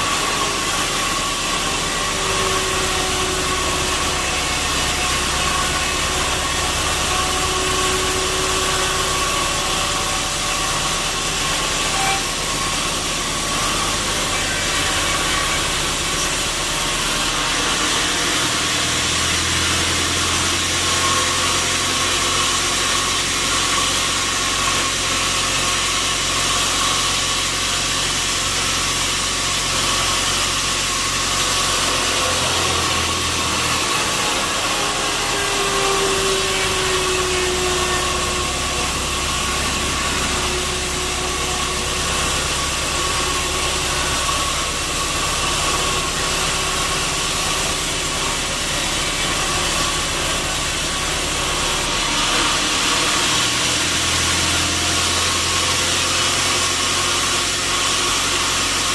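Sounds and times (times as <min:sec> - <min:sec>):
machinery whine: 0:00.0 - 0:58.9
sawmill machinery drone: 0:00.0 - 0:58.9
low engine-like hum: 0:31.8 - 0:54.0.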